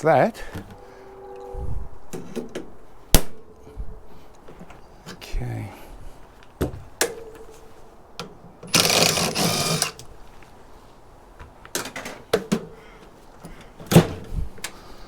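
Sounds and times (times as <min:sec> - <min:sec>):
loud whirring burst: 0:08.7 - 0:10.0.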